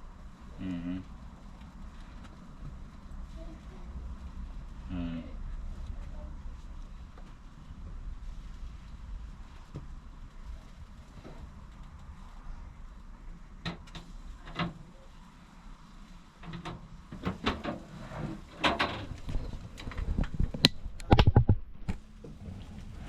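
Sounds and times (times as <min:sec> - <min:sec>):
knocks and clatters: 0:16.4 - 0:22.0.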